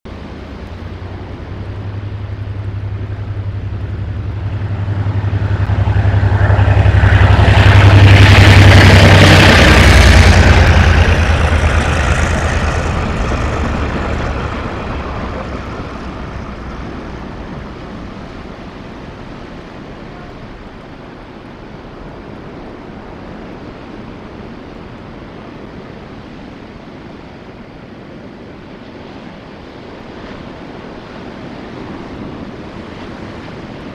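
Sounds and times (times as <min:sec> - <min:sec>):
freight train passing: 0:00.1 - 0:33.9.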